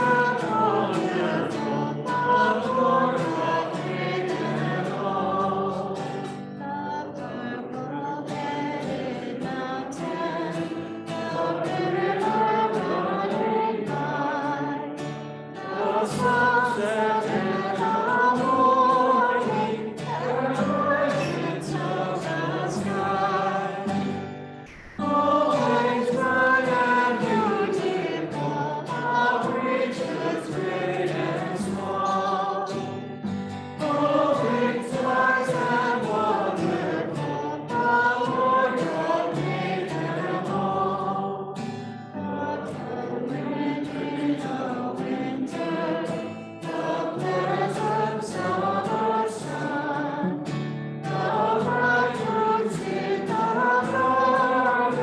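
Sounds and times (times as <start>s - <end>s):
congregation singing a hymn: 0.0s - 55.0s
accompanying chords: 24.7s - 31.0s.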